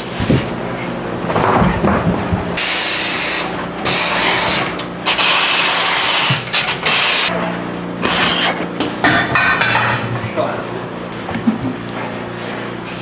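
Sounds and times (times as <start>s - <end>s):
steady mechanical hum: 0.0s - 13.0s
compressed air hissing: 2.6s - 7.3s, 8.0s - 8.7s.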